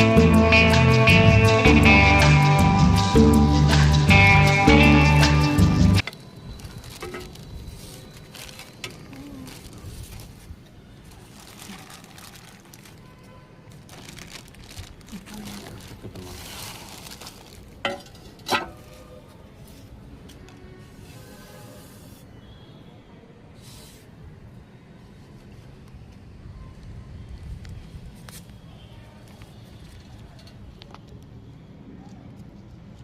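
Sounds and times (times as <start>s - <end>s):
guitar music: 0.0s - 6.0s
rustling and handling packaging: 6.0s - 22.3s.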